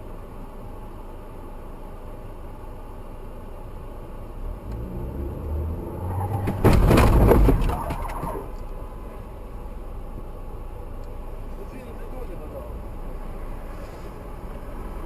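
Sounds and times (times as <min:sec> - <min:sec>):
car engine building up: 0:03.1 - 0:11.5
car crash crunching impacts: 0:06.0 - 0:08.5.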